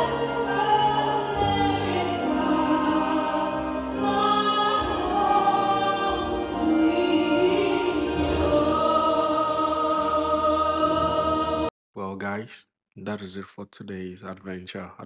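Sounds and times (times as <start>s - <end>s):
choir singing with accompaniment: 0.0s - 11.7s.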